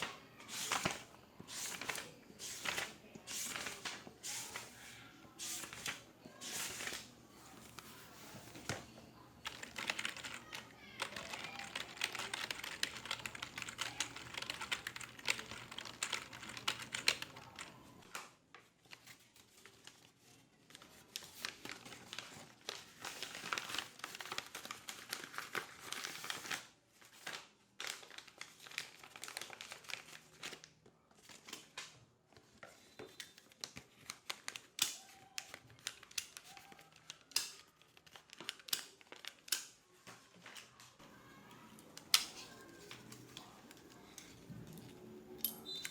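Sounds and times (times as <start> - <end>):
computer keyboard typing: 9.4 - 17.9.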